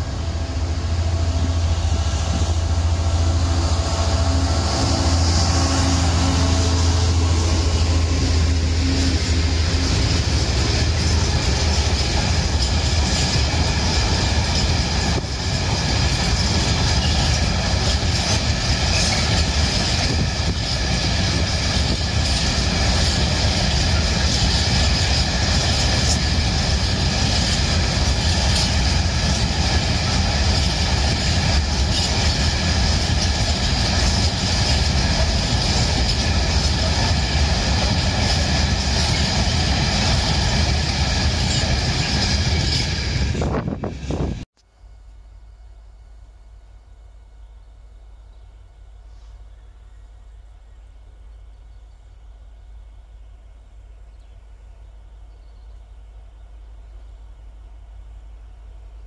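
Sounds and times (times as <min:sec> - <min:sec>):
steel wheels running on rails: 0:00.0 - 0:44.5
faint high ringing tones: 0:44.6 - 0:53.2.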